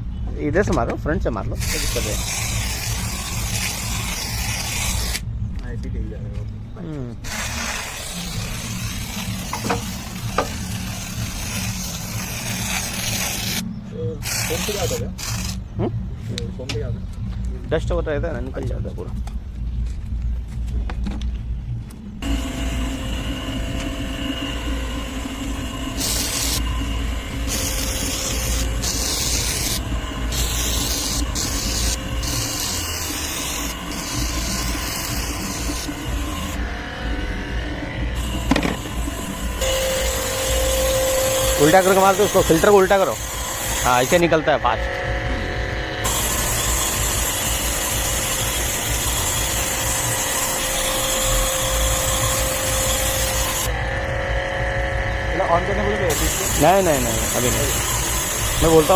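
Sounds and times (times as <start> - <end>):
high-pressure water jet spraying: 1.6 - 5.2, 7.3 - 13.6, 14.2 - 15.6, 25.9 - 36.6, 38.2 - 44.3, 46.0 - 53.7, 56.0 - 58.9
pump motor drone: 6.9 - 16.1, 22.2 - 58.9.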